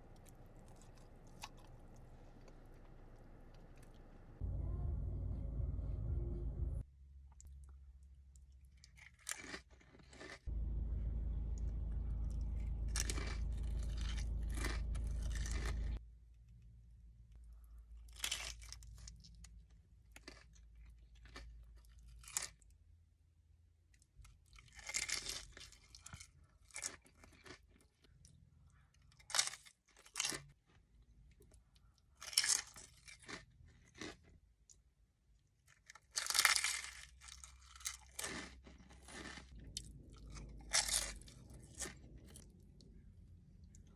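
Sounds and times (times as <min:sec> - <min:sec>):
crunchy chewing: 0:00.0 - 0:04.2, 0:08.4 - 0:10.5, 0:11.6 - 0:16.0, 0:18.0 - 0:22.6, 0:24.5 - 0:31.6, 0:35.6 - 0:43.0
steady low hum: 0:00.0 - 0:06.9, 0:10.5 - 0:16.0.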